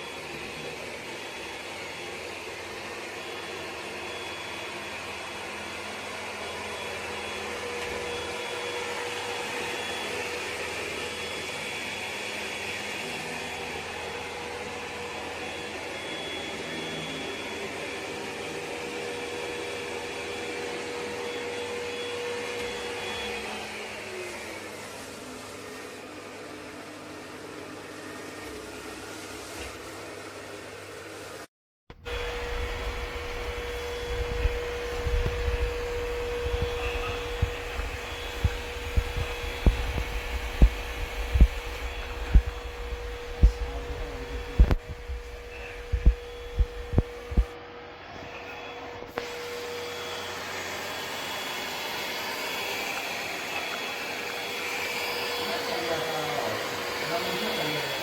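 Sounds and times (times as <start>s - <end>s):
robot vacuum whirring: 31.9s - 58.0s.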